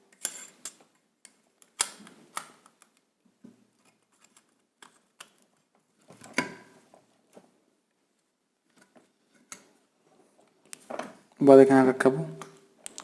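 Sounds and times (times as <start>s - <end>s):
sharp clicks and light knocks: 12.4s - 13.0s.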